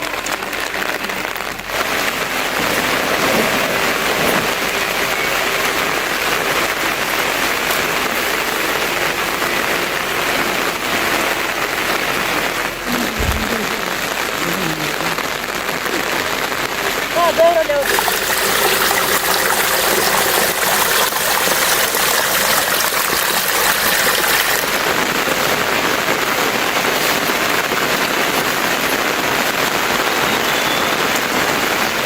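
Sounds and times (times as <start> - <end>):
heavy rain falling: 0.0 - 32.0
dull low bump: 12.9 - 15.0.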